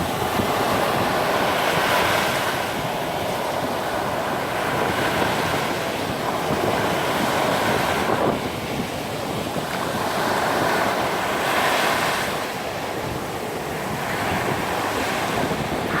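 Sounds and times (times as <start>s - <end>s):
waves breaking on beach: 0.0s - 16.0s
wind buffeting microphone: 0.0s - 16.0s.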